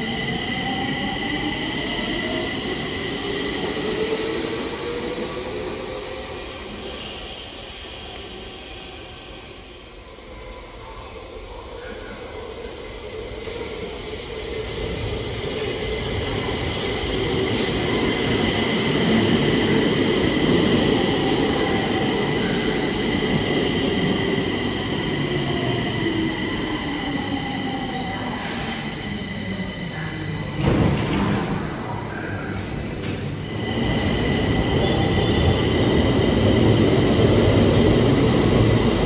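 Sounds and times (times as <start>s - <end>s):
metro train running past: 0.0s - 39.0s
high-pitched wheel squeal on rails: 33.5s - 36.3s.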